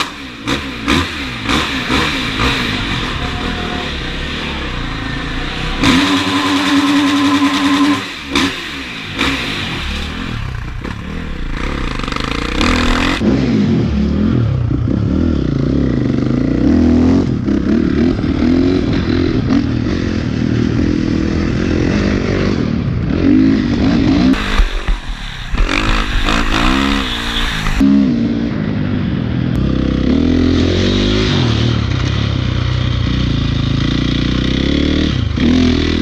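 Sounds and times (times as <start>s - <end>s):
dirt bike engine revving: 0.0s - 28.6s, 29.6s - 36.0s.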